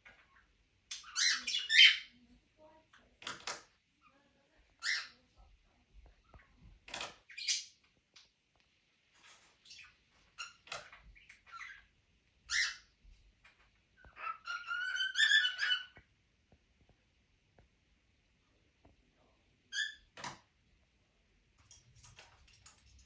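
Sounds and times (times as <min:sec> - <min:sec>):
parrots chirping: 0:00.9 - 0:02.1, 0:04.8 - 0:05.2, 0:09.3 - 0:11.9, 0:12.5 - 0:12.9, 0:14.0 - 0:16.0.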